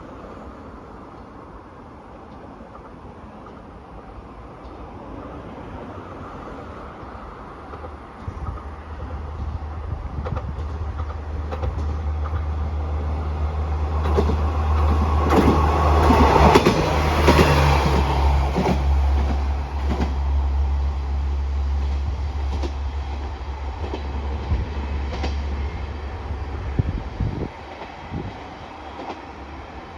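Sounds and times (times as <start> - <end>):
train wheels clicking over rails: 7.6 - 20.7, 21.6 - 29.9.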